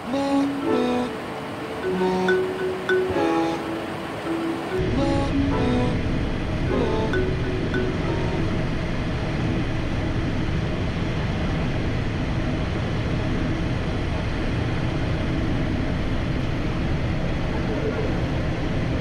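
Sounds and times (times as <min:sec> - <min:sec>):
jet noise in cockpit: 0:08.0 - 0:19.0.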